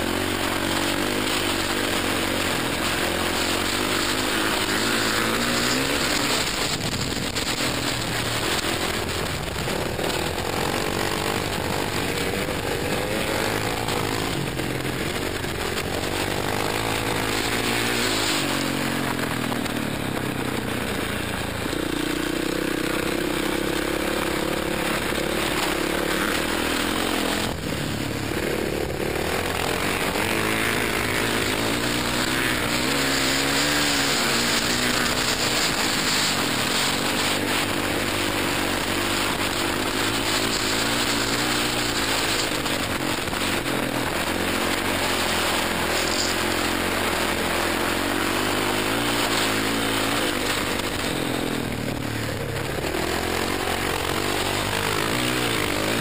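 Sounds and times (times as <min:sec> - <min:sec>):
dirt bike engine revving: 0:00.0 - 0:56.0
wind rush on microphone: 0:06.0 - 0:13.0.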